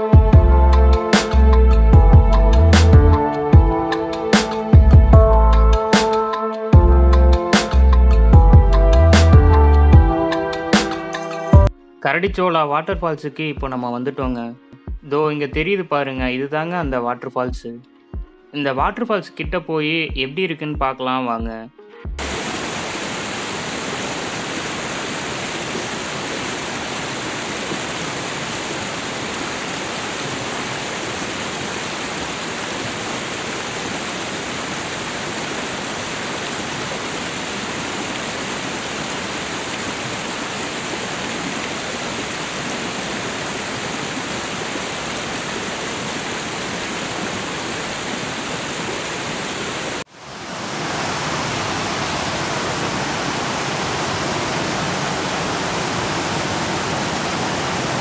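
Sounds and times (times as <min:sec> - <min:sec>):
waterfall rushing: 0:22.2 - 0:58.0.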